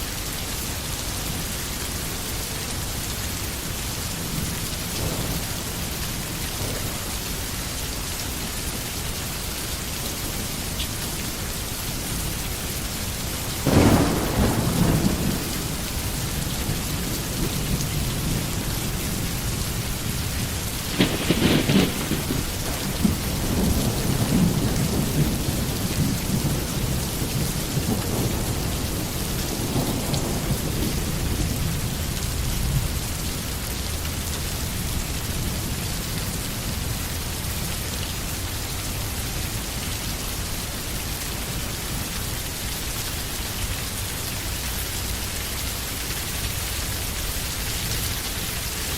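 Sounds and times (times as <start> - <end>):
steady rain in a forest: 0.0 - 48.9
low rumble of thunder: 3.0 - 40.7
loud thunderclaps: 4.2 - 7.5, 13.5 - 33.0.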